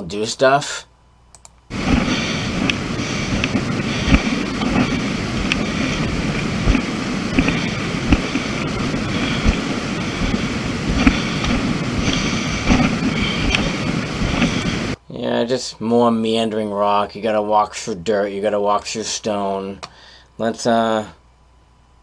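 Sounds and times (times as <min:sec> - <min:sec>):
footsteps on stone and dirt: 0:01.7 - 0:15.0
heavy breathing: 0:01.7 - 0:15.0, 0:19.9 - 0:20.3
wind rumbling on microphone: 0:01.7 - 0:15.0.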